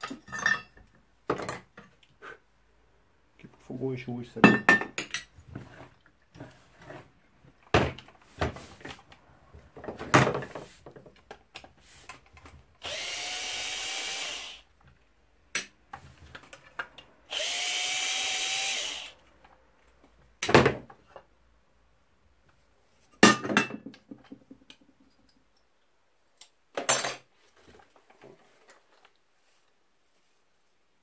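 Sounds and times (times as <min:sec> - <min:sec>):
tools knocking and clinking: 0:04.4 - 0:05.4
power drill motor whine: 0:12.8 - 0:14.7, 0:17.3 - 0:19.2.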